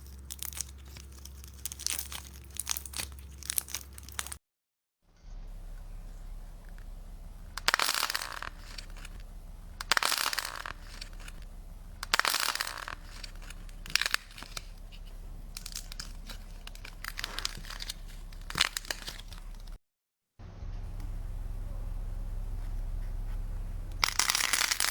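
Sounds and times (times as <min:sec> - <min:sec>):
slime crackling by hand: 0:00.0 - 0:04.4
low steady hum: 0:05.1 - 0:19.8, 0:20.4 - 0:24.9.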